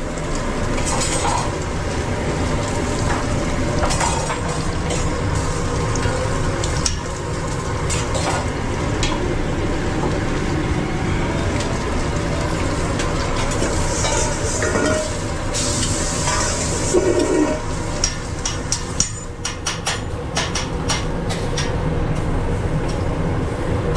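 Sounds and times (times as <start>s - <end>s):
low machine drone: 0.0s - 18.5s
food sizzling: 0.0s - 19.5s.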